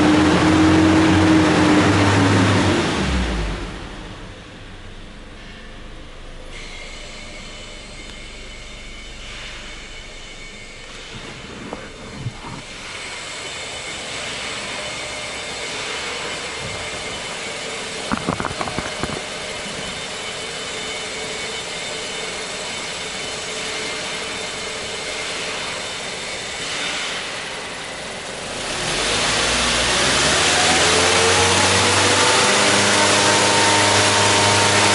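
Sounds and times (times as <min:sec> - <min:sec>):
engine and exhaust running: 0:00.0 - 0:34.9.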